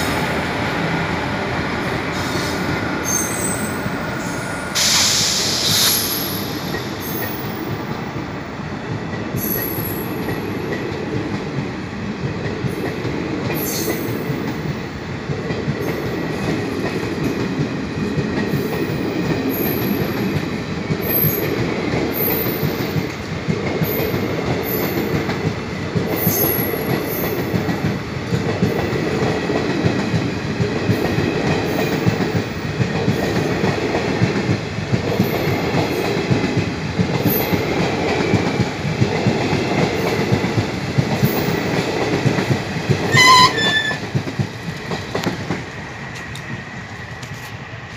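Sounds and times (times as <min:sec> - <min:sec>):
train rumbling past: 0:00.0 - 0:47.9
train horn beep: 0:43.1 - 0:44.1.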